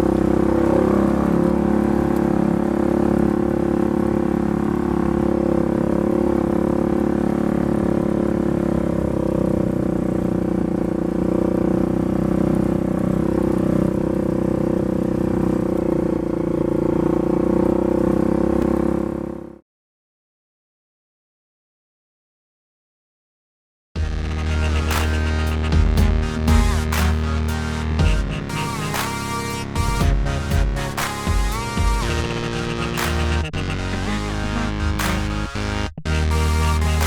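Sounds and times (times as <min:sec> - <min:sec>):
engine running steadily: 0:00.0 - 0:16.3, 0:24.0 - 0:37.0.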